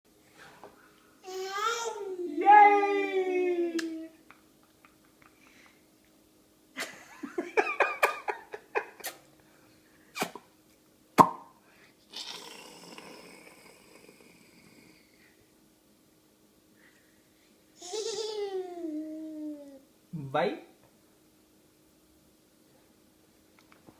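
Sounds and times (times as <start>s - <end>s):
drawn-out baby vocal sound: 12.1s - 15.1s.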